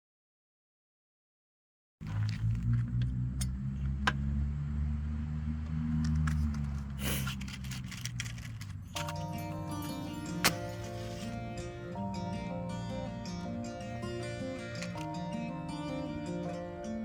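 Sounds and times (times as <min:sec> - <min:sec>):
acoustic guitar music: 0:08.9 - 0:17.0.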